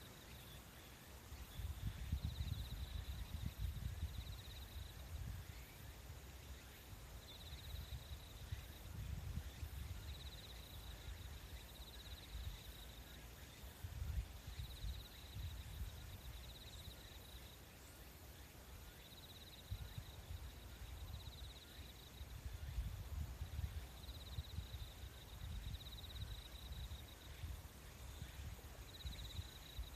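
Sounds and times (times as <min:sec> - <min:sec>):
insects trilling: 0:00.0 - 0:29.9.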